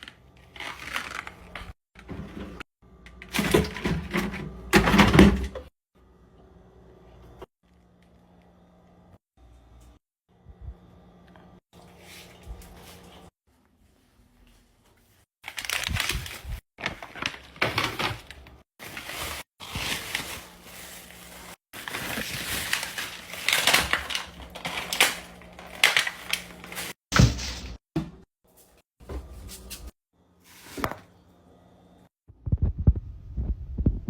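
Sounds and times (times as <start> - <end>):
plastic packaging crinkling: 0.0 - 1.8, 15.4 - 27.0.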